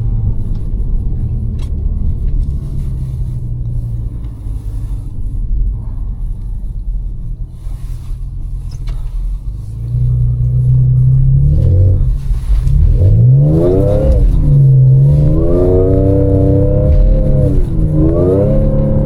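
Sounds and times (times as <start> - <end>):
car engine accelerating: 0.0 - 19.0
supercharger whine: 8.3 - 19.0.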